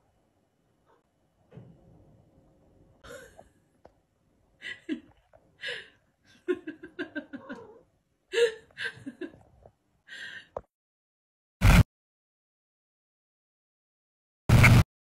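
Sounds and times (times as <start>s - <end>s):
person laughing: 4.6s - 9.4s.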